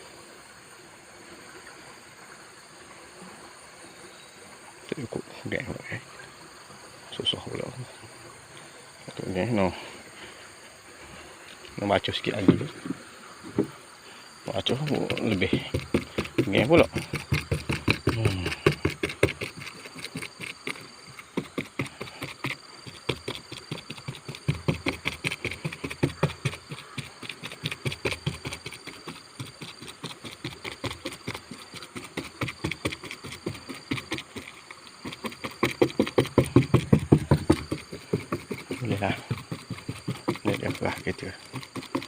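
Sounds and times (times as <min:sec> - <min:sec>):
resin being stirred in container: 0:14.5 - 0:22.4, 0:23.3 - 0:42.0.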